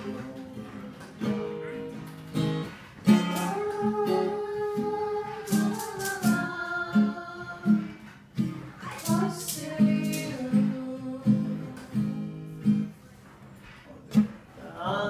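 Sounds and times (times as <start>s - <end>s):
acoustic guitar playing: 0.0s - 13.2s.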